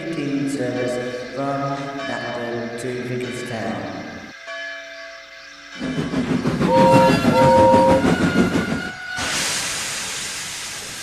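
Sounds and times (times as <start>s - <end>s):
train rumble and clatter: 5.8s - 11.0s
train horn blasts: 6.7s - 9.4s
long hiss: 8.7s - 11.0s.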